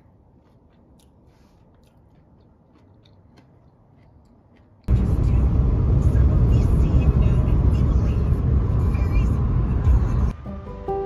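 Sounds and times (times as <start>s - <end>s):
person biting and chewing fruit: 0.1s - 4.9s
loud steady rumble: 4.9s - 10.4s.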